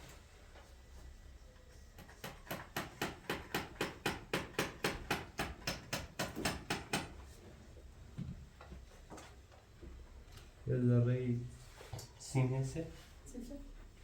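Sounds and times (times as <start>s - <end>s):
hammer driving a nail: 2.0s - 7.2s.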